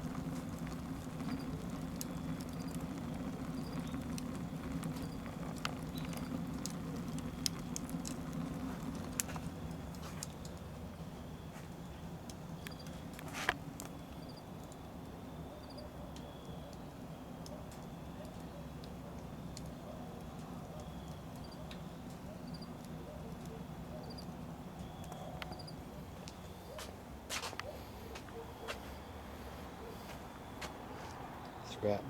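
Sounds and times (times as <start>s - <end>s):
wood fire rumbling: 0.0s - 31.8s
fire crackles: 0.0s - 32.0s.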